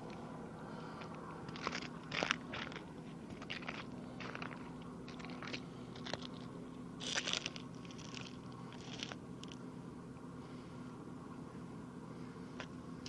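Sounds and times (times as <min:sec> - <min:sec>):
faint low hum: 0:00.0 - 0:13.0
ice and snow crunching: 0:00.8 - 0:09.6.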